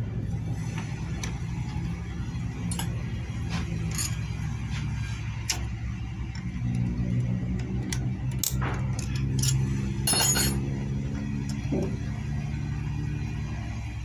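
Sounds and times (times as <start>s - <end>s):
low steady hum: 0.0s - 14.0s
hand tools tapping metal parts: 2.6s - 3.0s, 3.6s - 4.4s, 5.4s - 10.7s
ringing metal clatter: 8.4s - 10.7s.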